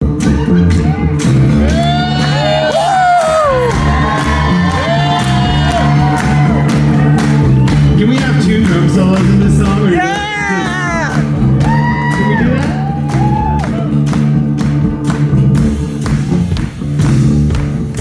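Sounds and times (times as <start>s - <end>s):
live rock band playing: 0.0s - 18.0s
audience whooping and shouting: 0.7s - 8.5s, 9.9s - 14.1s.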